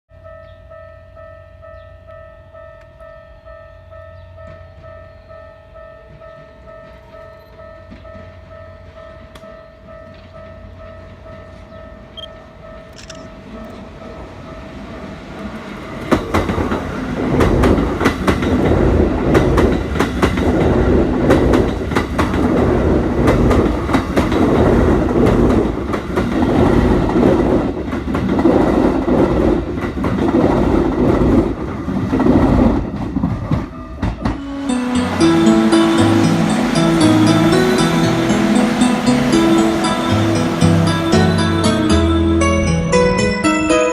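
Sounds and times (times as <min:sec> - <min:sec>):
level-crossing warning bell: 0:00.1 - 0:16.7, 0:32.6 - 0:43.9
train rumbling past: 0:00.2 - 0:43.9.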